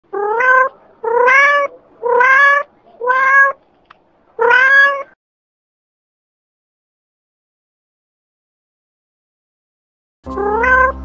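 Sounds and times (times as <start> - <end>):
cat meowing: 0.1 - 3.6, 4.4 - 5.2, 10.4 - 11.0.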